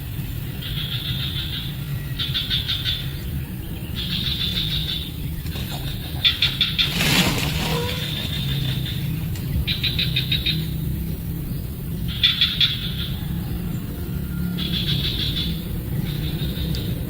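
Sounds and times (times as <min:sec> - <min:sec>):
nestling birds chirping: 0:00.0 - 0:17.0
steady low rumble: 0:00.0 - 0:17.0
rustling: 0:05.4 - 0:09.5.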